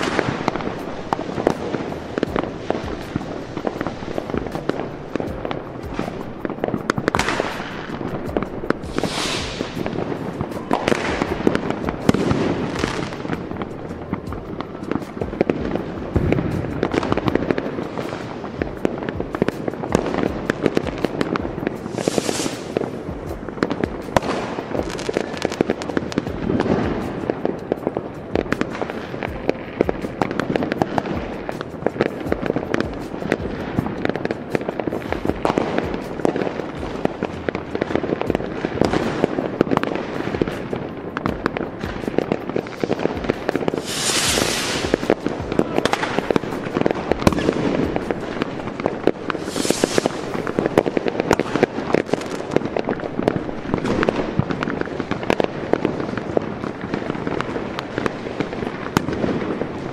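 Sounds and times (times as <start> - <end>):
fireworks bangs and crackles: 0.0 - 59.9
fireworks hissing bursts: 0.0 - 59.9.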